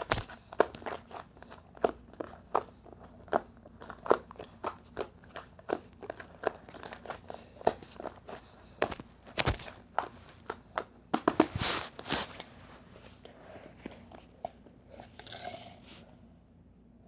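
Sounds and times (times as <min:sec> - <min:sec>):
crisp crunching of chewing: 0:00.0 - 0:10.9.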